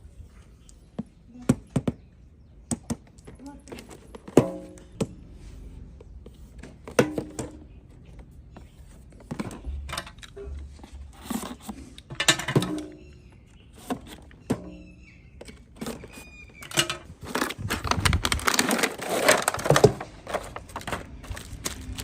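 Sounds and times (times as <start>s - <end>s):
objects knocking and clattering: 2.7s - 5.1s, 6.6s - 8.2s, 9.2s - 13.2s, 15.4s - 22.0s.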